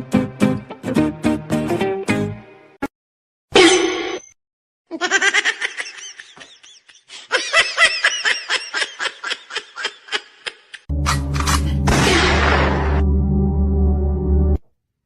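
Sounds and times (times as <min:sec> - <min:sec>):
person laughing in high-pitched bursts: 0:04.9 - 0:10.9.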